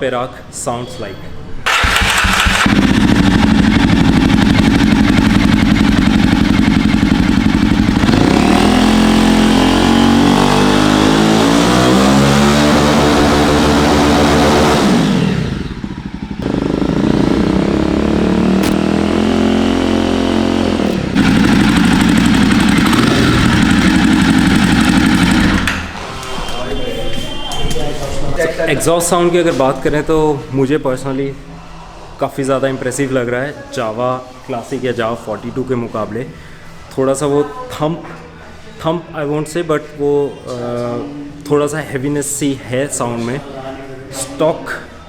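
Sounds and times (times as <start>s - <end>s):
motorcycle engine idling and revving: 1.7s - 26.4s.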